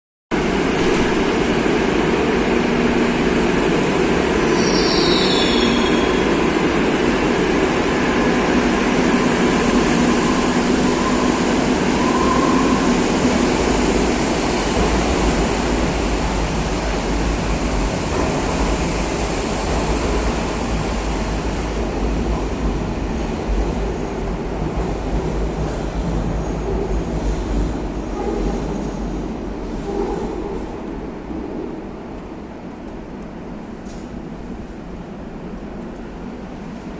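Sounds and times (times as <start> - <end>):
subway train rumbling: 0.3 - 36.9
train wheel squeal: 4.4 - 6.7, 9.0 - 13.5, 26.3 - 29.2.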